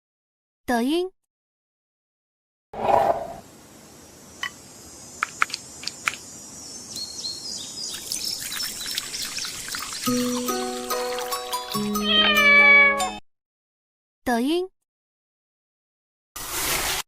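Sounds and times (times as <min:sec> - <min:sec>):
birds chirping: 0:03.9 - 0:11.4
sharp clicks: 0:05.2 - 0:06.2
music with held notes: 0:10.1 - 0:13.2.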